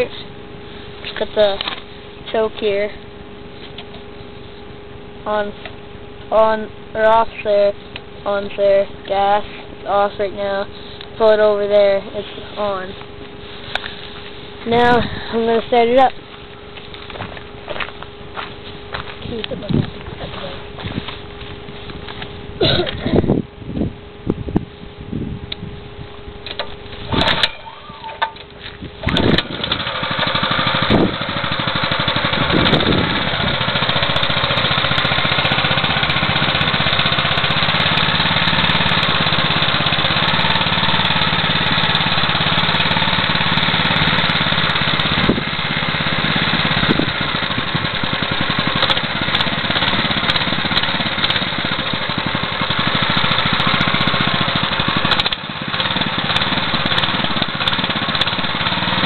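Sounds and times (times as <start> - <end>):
small engine idling: 0.0 - 23.5, 24.1 - 59.0
pull starter cord: 26.4 - 36.2, 44.3 - 59.0.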